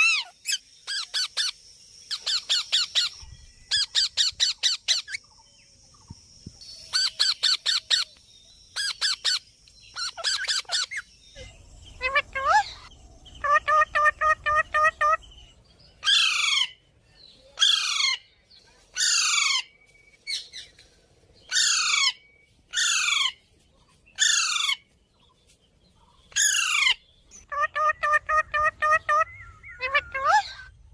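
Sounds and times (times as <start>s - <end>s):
parrot chattering: 12.0s - 15.3s, 26.6s - 30.7s
parrot screeching: 26.4s - 30.7s.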